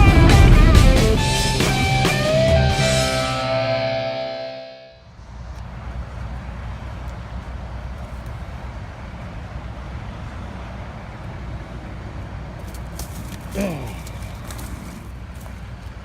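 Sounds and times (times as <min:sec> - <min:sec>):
guitar music: 0:00.0 - 0:05.0
road traffic rumble: 0:00.0 - 0:16.0.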